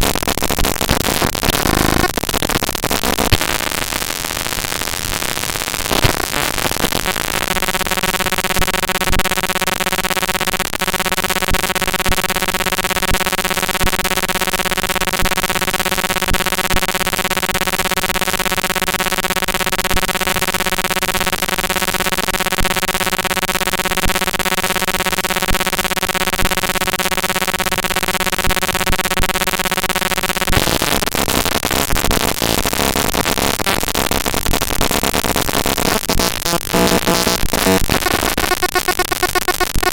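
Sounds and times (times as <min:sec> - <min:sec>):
buzzing drone: 0:00.0 - 0:39.9
harsh digital noise: 0:00.0 - 0:39.9.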